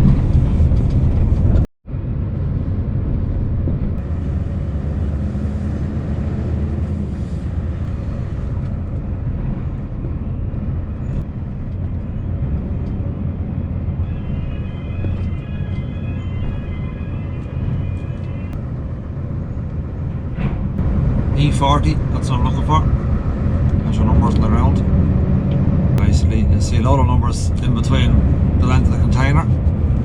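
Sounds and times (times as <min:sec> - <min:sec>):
truck driving slowly: 0:17.1 - 0:30.0.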